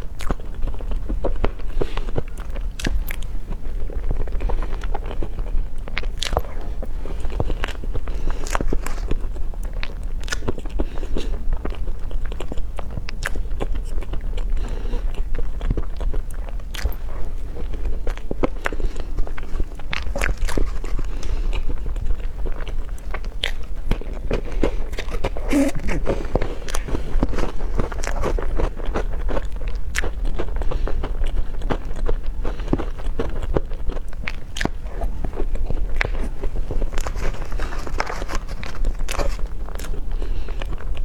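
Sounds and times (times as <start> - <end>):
biting and chewing: 0.0 - 41.0
steady low hum: 0.0 - 41.0
small clicks and crunches: 18.1 - 28.8, 34.4 - 40.0.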